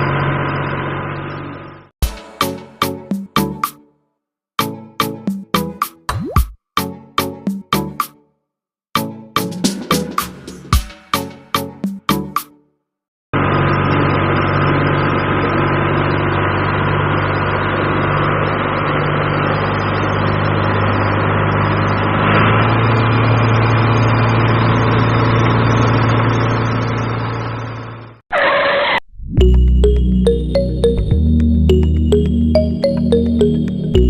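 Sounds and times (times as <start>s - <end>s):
engine humming steadily: 13.4s - 28.2s.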